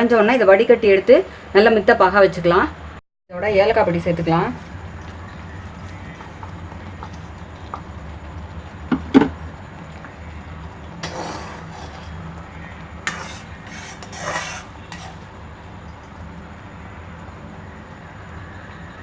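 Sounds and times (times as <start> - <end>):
syrup boiling: 4.1 - 15.9
stirring scrapes and clinks: 11.0 - 12.4, 13.0 - 15.3.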